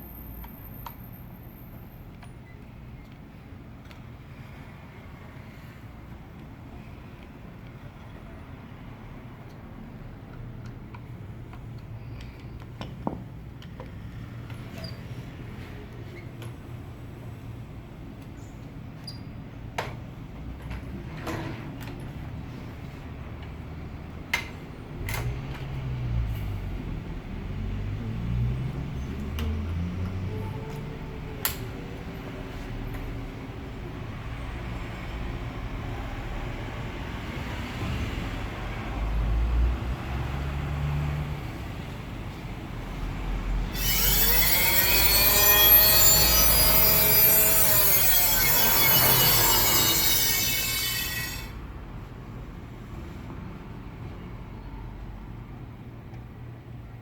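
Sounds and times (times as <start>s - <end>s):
blade rubbing and sawing: 43.7s - 51.6s
electric motor humming: 43.8s - 51.5s.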